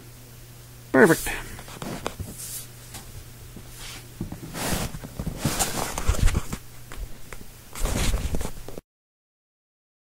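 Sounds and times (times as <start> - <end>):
rustling: 1.2 - 7.1, 7.8 - 8.8.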